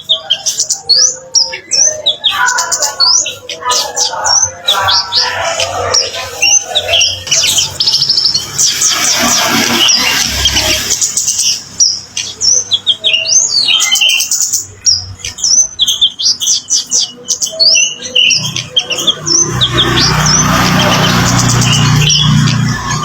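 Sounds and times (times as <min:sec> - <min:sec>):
bird chirping and whistling: 0:00.0 - 0:23.0
steady rushing noise with hum: 0:04.4 - 0:12.2.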